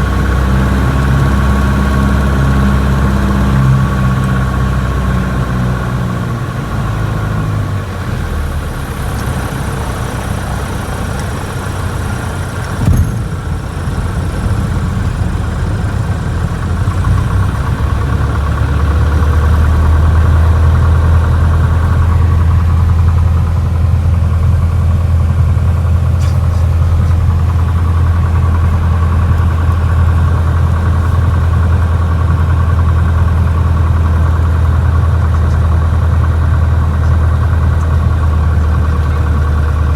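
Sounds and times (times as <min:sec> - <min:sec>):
propeller plane engine drone: 0:00.0 - 0:39.9
sharp knock: 0:12.8 - 0:13.7.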